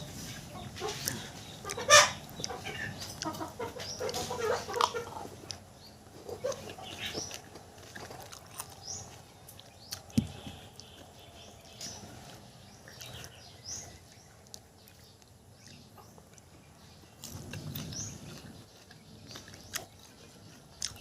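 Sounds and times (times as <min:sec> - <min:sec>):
chickens clucking: 0:00.0 - 0:14.7, 0:15.6 - 0:16.6.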